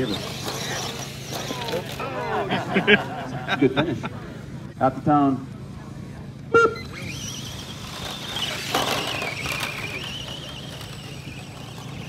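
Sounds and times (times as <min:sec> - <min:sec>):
electric motor whining: 0:00.0 - 0:02.4, 0:06.7 - 0:12.0.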